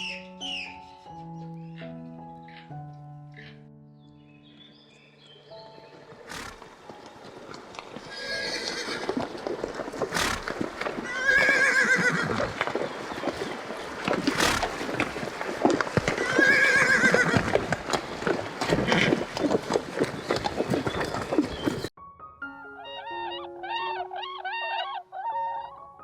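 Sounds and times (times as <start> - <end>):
clatter of hooves: 5.9 - 21.9
horses neighing: 6.2 - 21.9.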